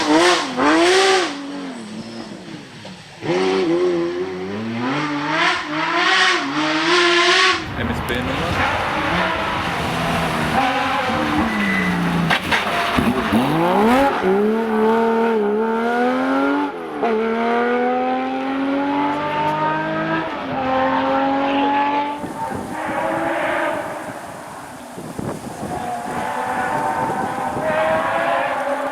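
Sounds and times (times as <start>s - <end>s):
rally car engine accelerating: 0.0s - 28.9s.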